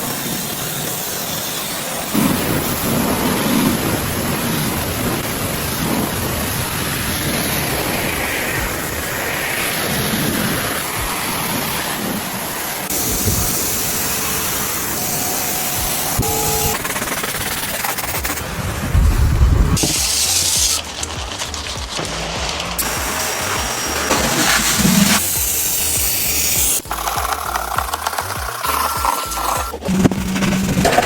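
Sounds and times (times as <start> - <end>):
pressure washer spraying water: 0.0 - 18.8, 19.8 - 31.0
low rumble: 18.6 - 19.8.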